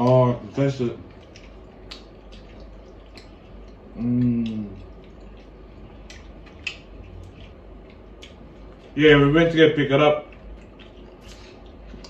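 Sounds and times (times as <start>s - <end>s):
wet chewing and lip-smacking: 0.0s - 12.0s
person humming mmm: 3.9s - 4.9s.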